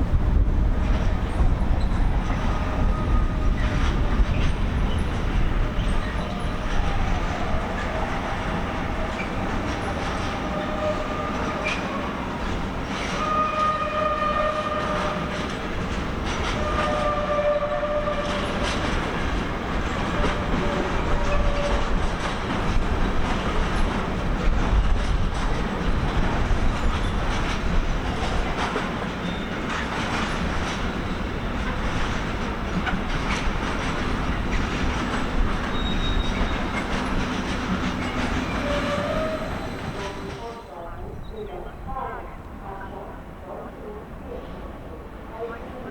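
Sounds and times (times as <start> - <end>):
high wheel squeals: 35.2 - 40.3.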